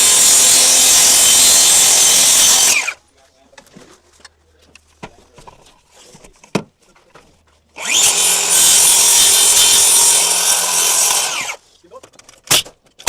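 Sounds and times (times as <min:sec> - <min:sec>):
power saw cutting wood: 0:00.0 - 0:03.0, 0:07.8 - 0:11.6.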